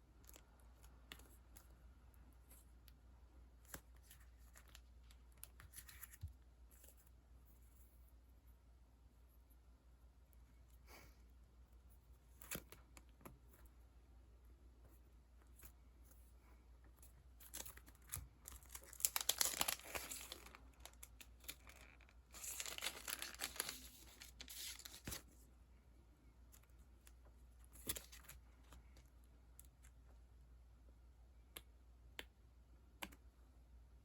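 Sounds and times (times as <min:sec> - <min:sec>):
plastic packaging crinkling: 0:17.4 - 0:25.3.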